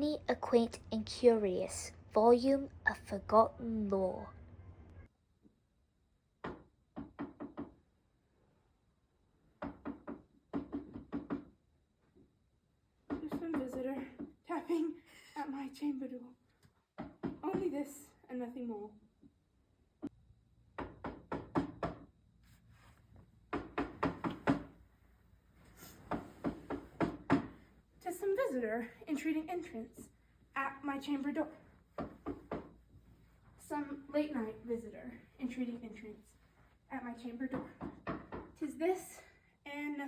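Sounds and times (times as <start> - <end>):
knocking on a door: 6.4 - 7.8, 9.6 - 11.5, 20.7 - 22.1, 23.5 - 24.8, 26.1 - 27.6, 32.0 - 32.8, 37.5 - 38.6.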